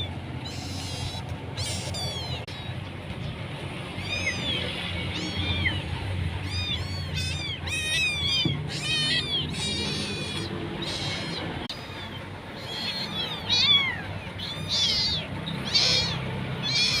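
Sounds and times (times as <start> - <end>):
kittens mewing: 0.0 - 3.0, 3.8 - 17.0.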